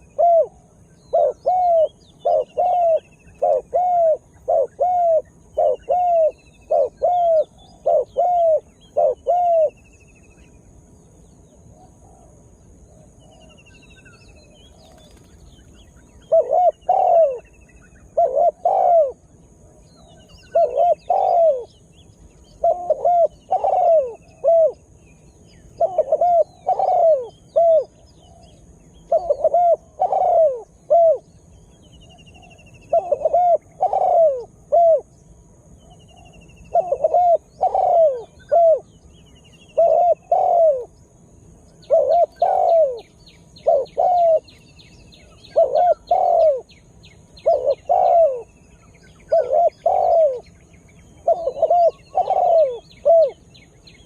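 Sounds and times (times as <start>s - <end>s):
dove cooing: 0.0s - 9.8s, 11.7s - 21.8s, 22.4s - 25.0s, 25.7s - 31.3s, 32.1s - 35.2s, 35.8s - 41.0s, 41.8s - 50.6s, 51.2s - 53.7s
small birds chirping: 0.0s - 12.0s, 12.6s - 54.0s
rapid bird trill: 13.4s - 19.2s, 20.0s - 54.0s.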